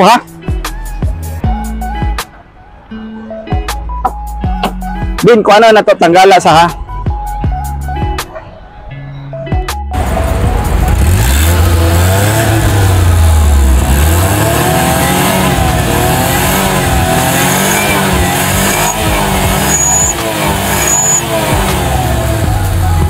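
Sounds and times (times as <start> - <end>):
truck engine revving: 10.0 - 23.0.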